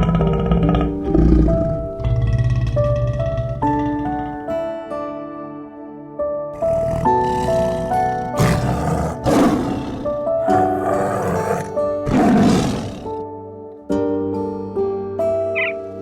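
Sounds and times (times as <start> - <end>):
large animal roaring: 0.0 - 4.5, 6.6 - 13.2
soft background music: 0.0 - 16.0.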